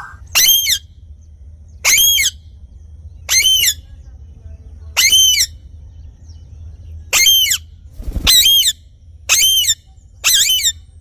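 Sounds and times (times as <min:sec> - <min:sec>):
parrot squawking: 0:00.0 - 0:00.8.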